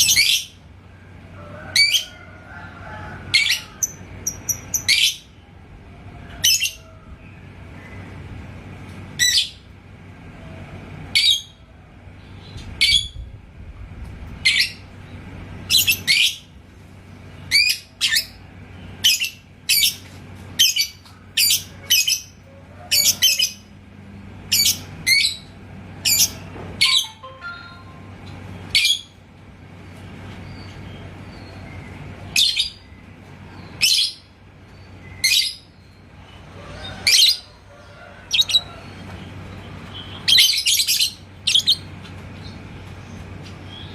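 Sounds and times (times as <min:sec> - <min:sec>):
bird chirping: 0:38.3 - 0:38.9, 0:39.8 - 0:42.6.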